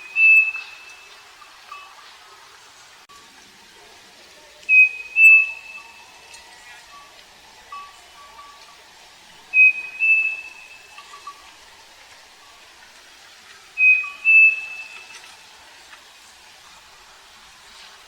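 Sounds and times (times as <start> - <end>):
cuckoo whistled song: 0.0 - 2.0, 4.6 - 7.1, 9.5 - 11.4, 13.8 - 15.3.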